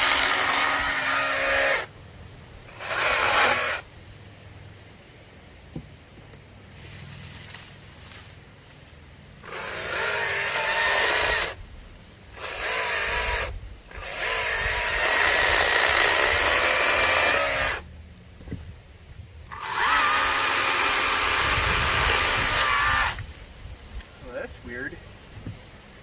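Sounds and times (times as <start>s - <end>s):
electric chainsaw cutting wood: 0.0s - 1.9s, 2.7s - 3.9s, 9.4s - 11.6s, 12.3s - 17.9s, 19.5s - 23.3s.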